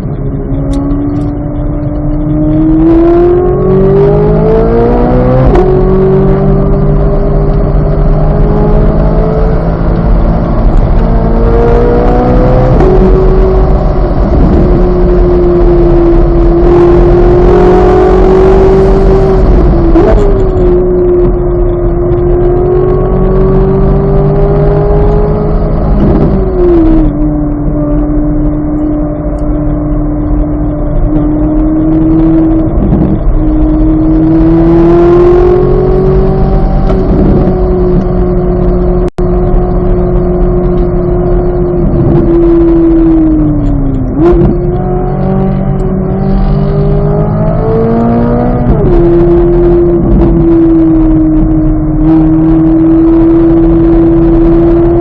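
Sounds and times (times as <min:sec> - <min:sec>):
sports car engine running hard: 0:00.0 - 0:55.0.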